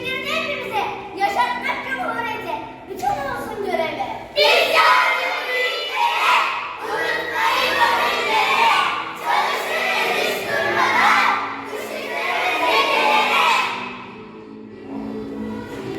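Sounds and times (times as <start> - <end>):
children shouting in unison: 4.4 - 14.0.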